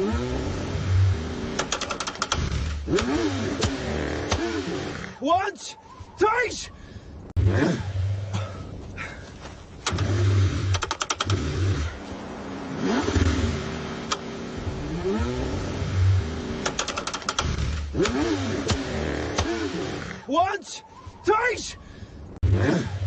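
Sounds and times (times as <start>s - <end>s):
car engine cranking: 0.0s - 5.2s, 9.7s - 12.1s, 12.7s - 20.2s
rapid clicking: 1.6s - 3.7s, 10.7s - 11.4s, 16.6s - 18.8s.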